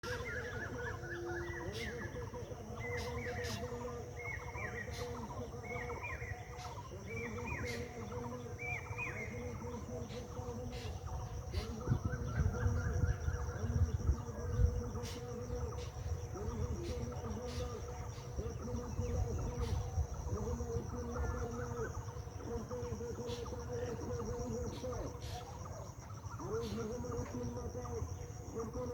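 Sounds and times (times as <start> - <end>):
bird chirping: 0.0 - 28.9
birds calling: 0.0 - 28.9
high insect drone: 0.0 - 28.9.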